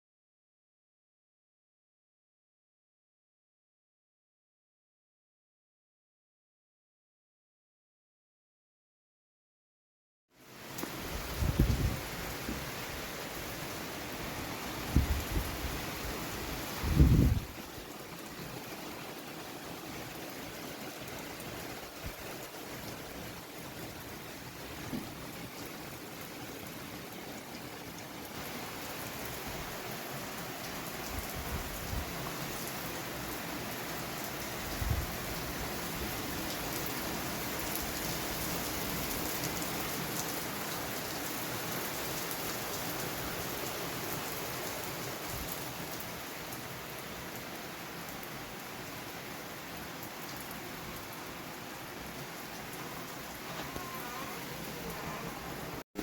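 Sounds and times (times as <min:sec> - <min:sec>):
heavy rain falling: 0:10.5 - 0:56.0.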